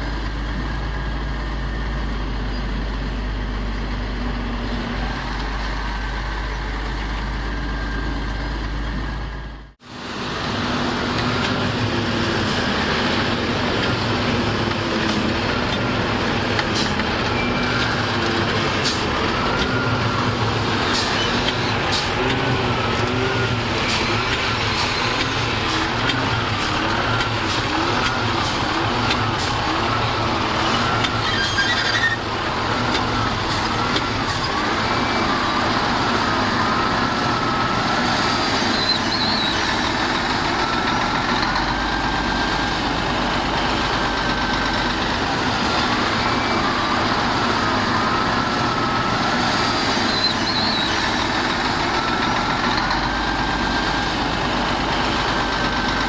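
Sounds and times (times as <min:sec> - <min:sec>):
heavy diesel machinery running: 0:00.0 - 0:56.0.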